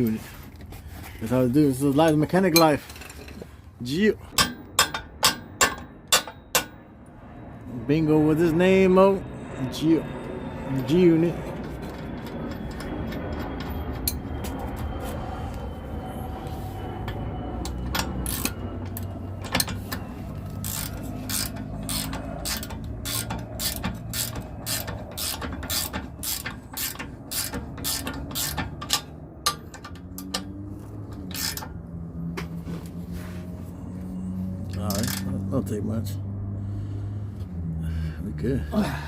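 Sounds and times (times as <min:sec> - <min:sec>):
ratchet wrench clicking: 0:17.6 - 0:19.7, 0:20.6 - 0:30.5, 0:31.3 - 0:31.7, 0:34.7 - 0:35.3.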